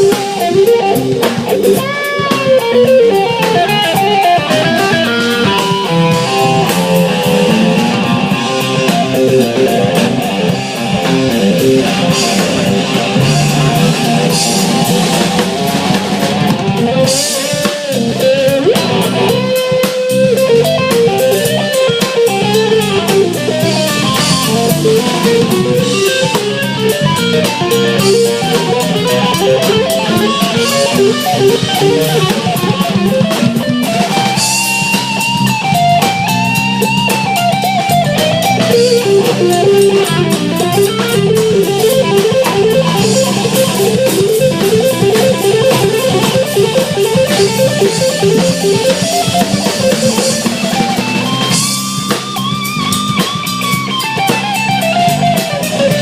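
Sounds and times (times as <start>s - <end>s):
bass guitar: 0.0s - 56.0s
drum kit: 0.0s - 56.0s
electric guitar lead lines: 0.0s - 56.0s.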